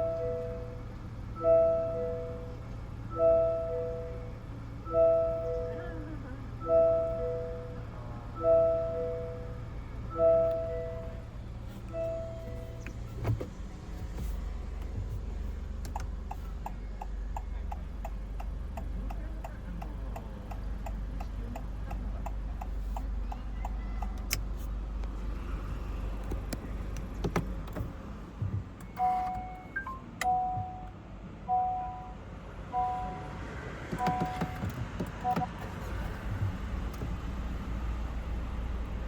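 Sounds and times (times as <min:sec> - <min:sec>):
idling engine hum: 0:00.0 - 0:39.0
two-tone electronic chime beeping: 0:28.9 - 0:30.9.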